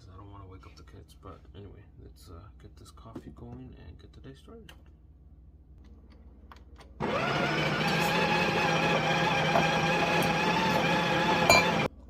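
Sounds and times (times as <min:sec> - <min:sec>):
coffee machine motor hum: 0:07.0 - 0:11.9.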